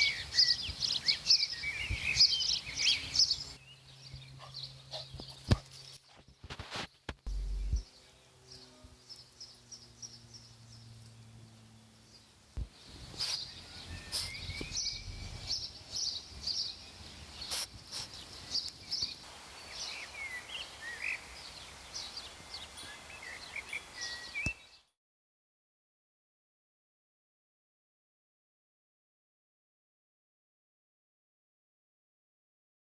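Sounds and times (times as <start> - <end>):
small birds chirping: 0.0 - 24.9
lower bird calls: 12.8 - 24.8.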